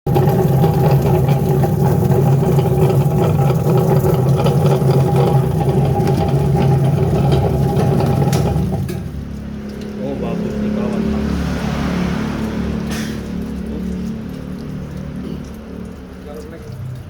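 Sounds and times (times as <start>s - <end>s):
potato peeling machine humming: 0.1s - 9.1s.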